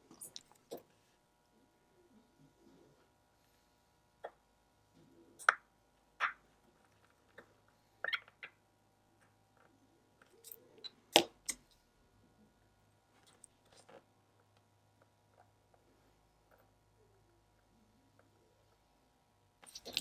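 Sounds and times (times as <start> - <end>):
watchmaker's tools clicking and tapping: 12.8 - 20.0.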